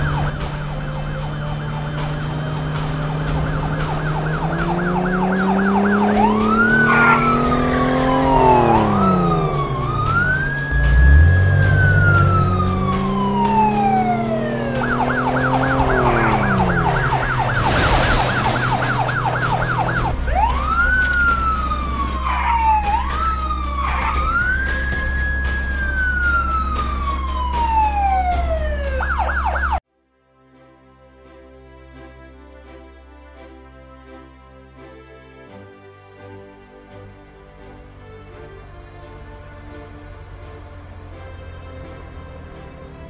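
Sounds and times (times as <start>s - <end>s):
low steady engine hum: 0.0s - 29.0s
police siren wailing and yelping: 0.0s - 29.8s.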